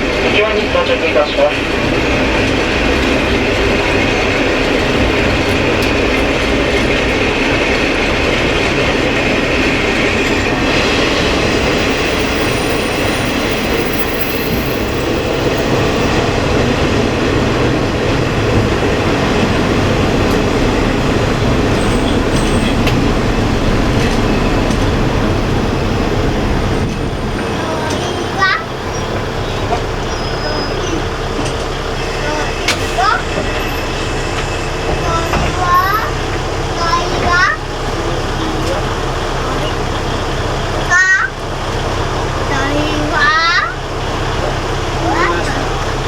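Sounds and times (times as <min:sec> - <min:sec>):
diesel engine drone: 0:00.0 - 0:46.0
wheels rumbling on rail: 0:00.0 - 0:46.0
high wheel squeal: 0:02.9 - 0:17.1, 0:20.4 - 0:36.7.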